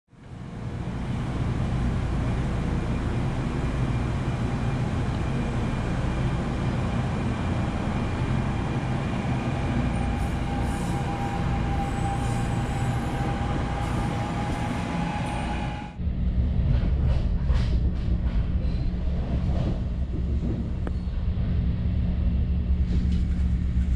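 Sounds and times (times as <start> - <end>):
train wheels rumbling: 0.3 - 23.9.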